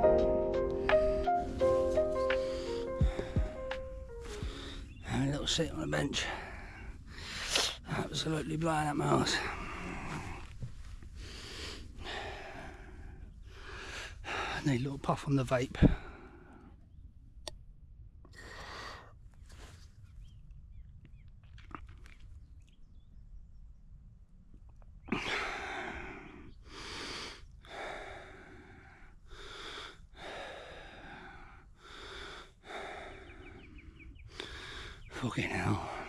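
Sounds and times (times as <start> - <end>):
man breathing hard: 0.7 - 5.0, 6.2 - 7.8, 9.3 - 14.7, 15.8 - 16.8, 18.3 - 19.2, 25.1 - 36.0
wind rumble on microphone: 15.7 - 16.2.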